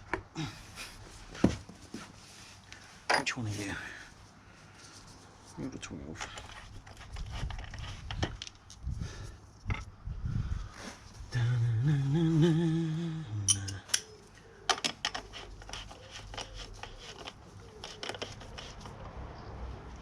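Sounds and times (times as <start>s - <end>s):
man humming: 11.3s - 14.0s.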